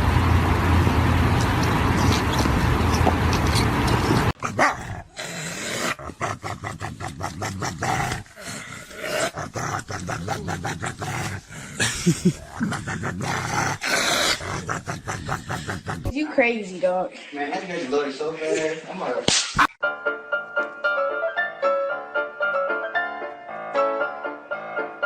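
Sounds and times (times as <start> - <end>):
dog barking and growling: 4.4 - 16.2.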